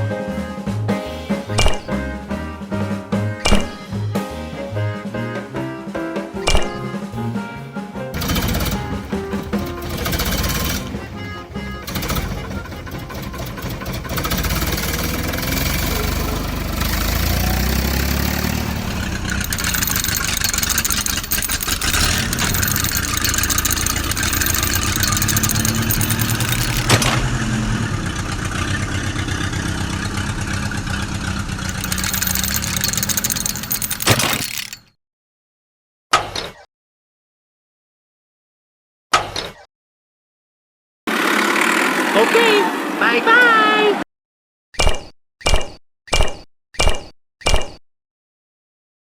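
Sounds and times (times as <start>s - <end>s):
engine revving unevenly: 8.2s - 31.8s.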